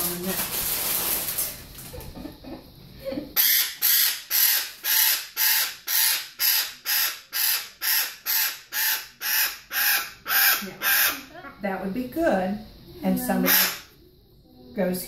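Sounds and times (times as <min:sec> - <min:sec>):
bird squawking harshly: 0:03.4 - 0:11.3, 0:13.4 - 0:13.9.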